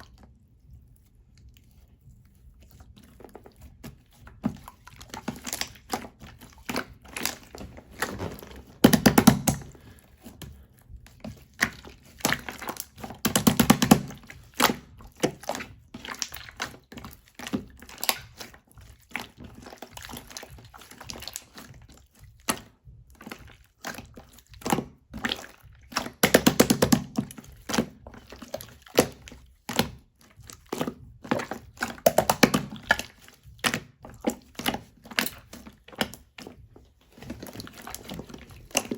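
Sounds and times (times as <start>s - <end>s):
slime squeezed clicking and popping: 31.8s - 33.0s.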